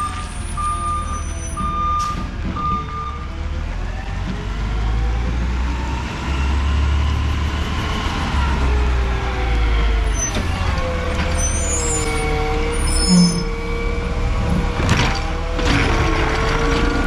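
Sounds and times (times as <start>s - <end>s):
truck backup alarm beeping: 0.0s - 3.5s, 10.0s - 14.8s
diesel engine revving: 0.0s - 17.0s
low rumble: 9.8s - 15.4s.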